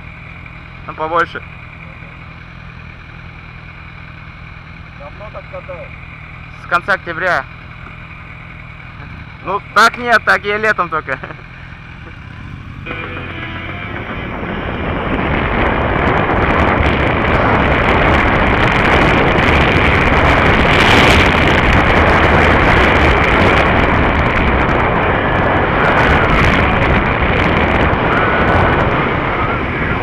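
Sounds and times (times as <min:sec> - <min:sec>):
traffic noise: 0:00.0 - 0:30.0
wind buffeting microphone: 0:12.0 - 0:30.0.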